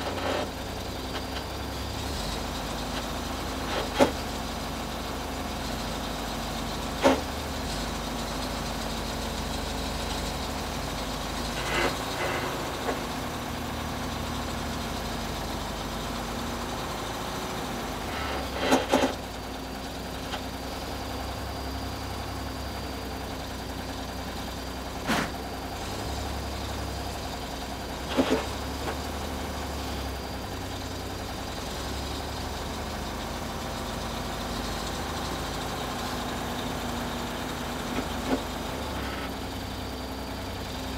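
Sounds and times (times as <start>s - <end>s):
diesel engine running: 0.0s - 40.9s
sharp knocks and clunks: 3.7s - 4.2s, 7.0s - 7.3s, 25.0s - 25.4s.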